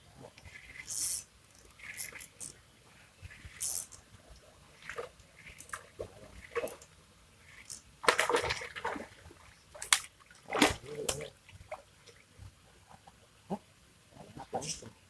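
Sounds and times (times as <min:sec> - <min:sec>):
water splashing: 0:03.2 - 0:12.4.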